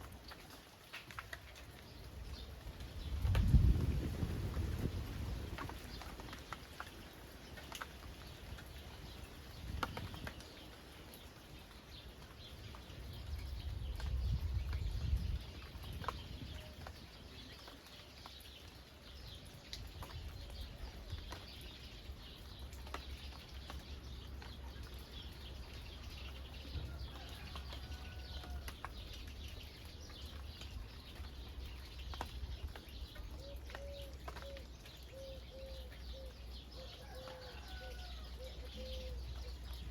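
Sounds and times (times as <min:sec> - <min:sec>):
rain dripping and pattering: 0:00.0 - 0:39.9
birds calling: 0:29.6 - 0:39.9
dove cooing: 0:33.4 - 0:37.8.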